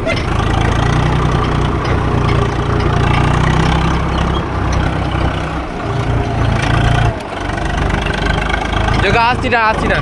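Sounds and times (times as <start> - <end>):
tractor diesel engine straining: 0.0 - 10.0.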